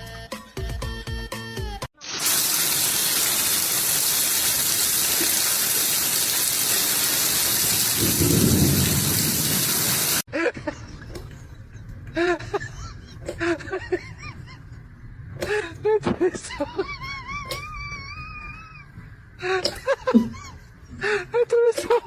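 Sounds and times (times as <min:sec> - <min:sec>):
heavy rain falling: 0:02.1 - 0:10.2
low roll of thunder: 0:07.9 - 0:10.2.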